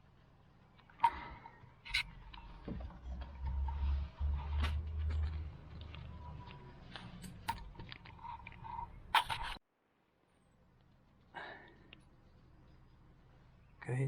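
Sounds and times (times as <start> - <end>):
low rumble: 2.0 - 9.1.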